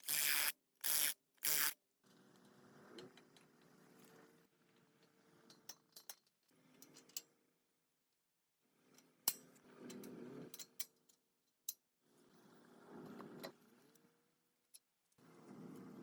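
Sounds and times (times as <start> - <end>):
small motor running: 0.0 - 1.8.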